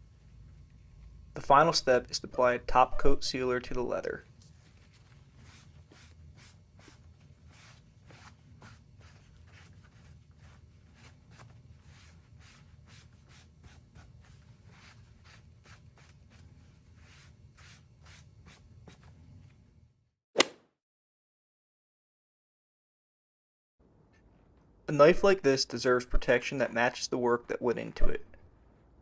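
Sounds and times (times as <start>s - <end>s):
low steady hum: 0.0s - 19.9s
applicator rubbing on leather: 4.4s - 19.1s.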